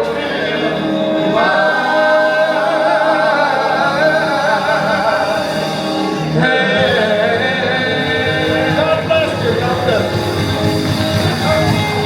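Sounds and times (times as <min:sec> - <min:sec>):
accompanying music: 0:00.0 - 0:12.0
backing voices singing: 0:00.0 - 0:12.0.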